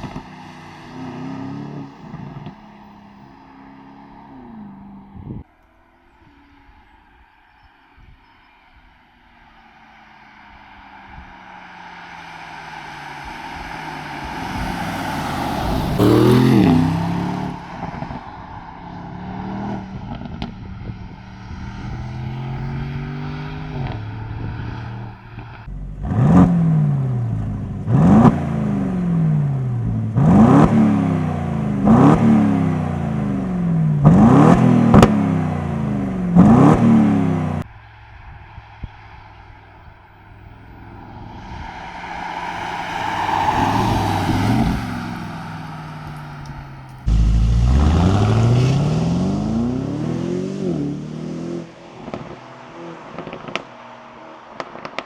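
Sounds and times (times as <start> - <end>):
car engine revving: 9.5 - 55.0
sharp exhaust crack: 44.6 - 49.8.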